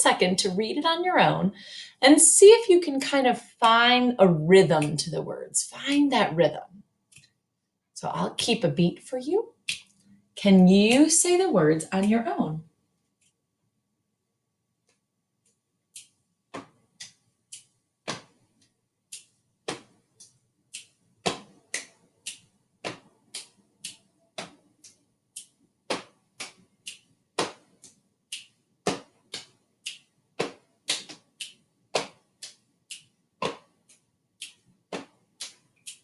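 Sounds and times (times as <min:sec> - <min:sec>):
hand claps: 0:21.3 - 0:24.6, 0:25.9 - 0:32.6.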